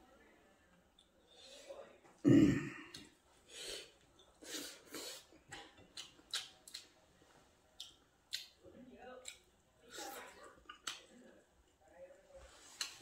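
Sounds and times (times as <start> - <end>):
breaths through nose: 3.4 - 5.4
man chewing: 3.7 - 7.0, 9.2 - 11.1
wet mouth clicks: 5.5 - 6.9, 7.8 - 8.6, 10.7 - 11.1.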